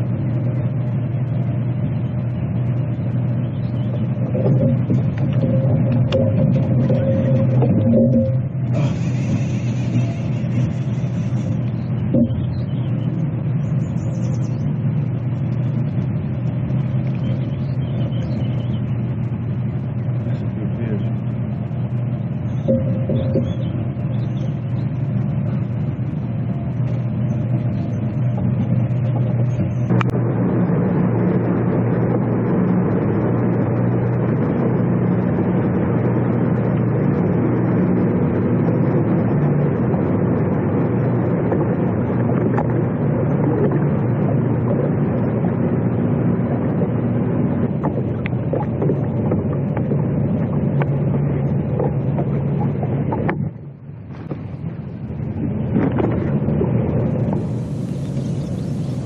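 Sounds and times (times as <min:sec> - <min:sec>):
boat motor running: 0:00.0 - 0:59.0
wind and water noise: 0:00.0 - 0:59.0.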